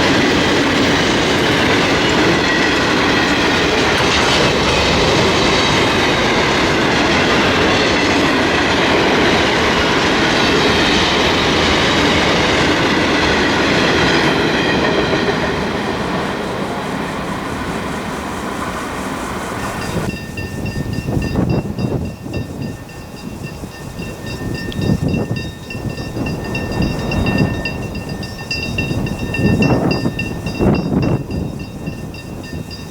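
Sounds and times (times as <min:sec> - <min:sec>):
freight train wheels rumbling: 0:00.0 - 0:32.9.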